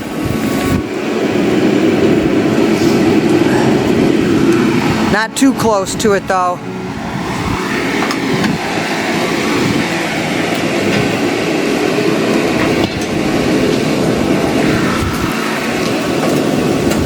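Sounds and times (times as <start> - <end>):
heater blowing air: 0.0 - 17.0.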